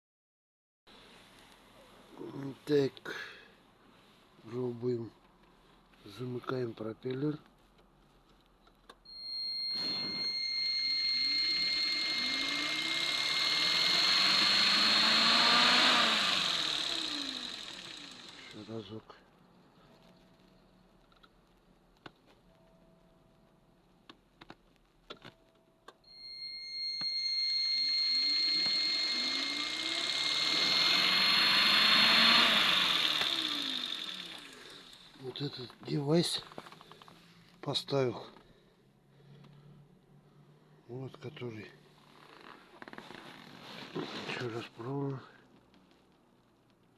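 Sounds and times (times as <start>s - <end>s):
high electronic whine: 9.2s - 18.7s, 26.1s - 35.5s
electric fan hum: 9.5s - 18.7s, 26.2s - 35.3s.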